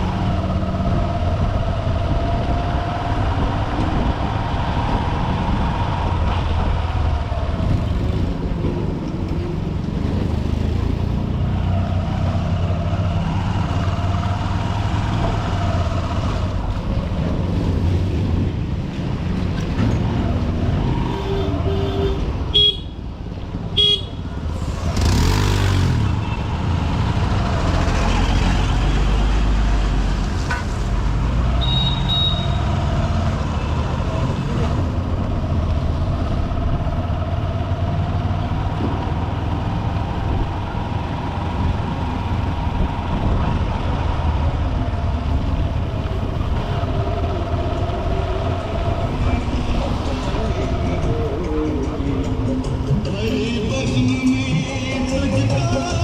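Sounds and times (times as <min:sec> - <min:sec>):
rumble of traffic: 0:00.0 - 0:56.0
vehicle horn toots: 0:21.1 - 0:23.0, 0:23.8 - 0:24.2, 0:31.6 - 0:32.6
rush of passing vehicle: 0:24.3 - 0:54.3.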